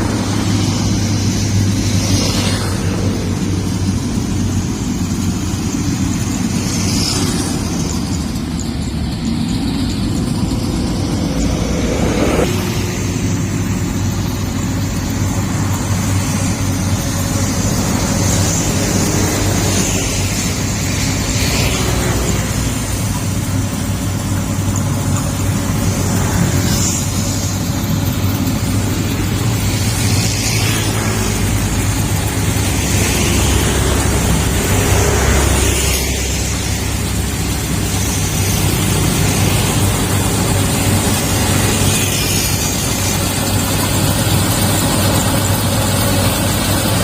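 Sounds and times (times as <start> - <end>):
diesel engine droning: 0.0 - 47.0.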